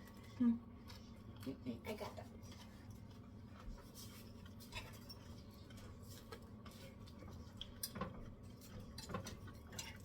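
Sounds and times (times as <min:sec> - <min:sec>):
faint clicks and taps: 0:05.6 - 0:10.0.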